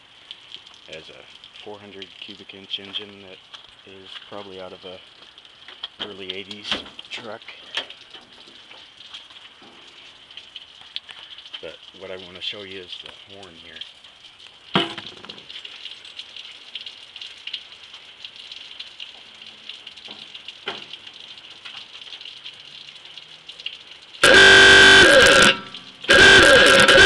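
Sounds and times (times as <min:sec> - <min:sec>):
novelty car horn blasts: 0:24.2 - 0:27.0.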